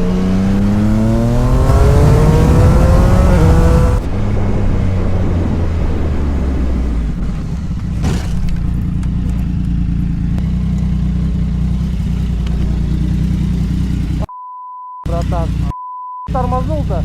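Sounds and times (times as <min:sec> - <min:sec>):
rush of noise: 0:00.0 - 0:08.6
engine and road rumble: 0:00.0 - 0:14.3, 0:15.0 - 0:17.0.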